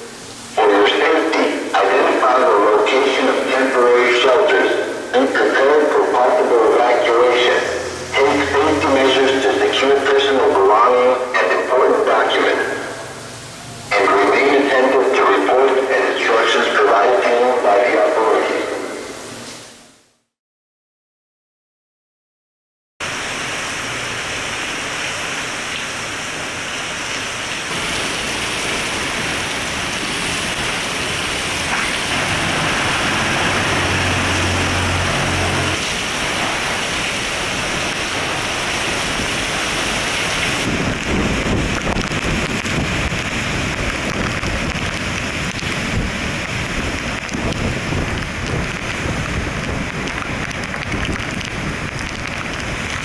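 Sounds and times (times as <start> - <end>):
hurricane wind and heavy rain: 0.0 - 20.0, 23.0 - 53.0
wind buffeting microphone: 27.9 - 53.0.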